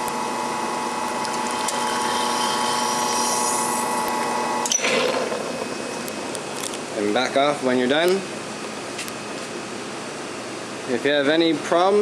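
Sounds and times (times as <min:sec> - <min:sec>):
espresso machine pump humming: 0:00.7 - 0:06.8.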